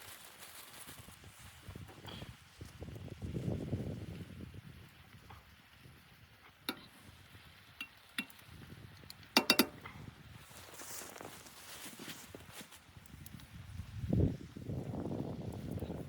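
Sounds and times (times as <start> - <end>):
hard objects clinking: 9.4 - 9.8.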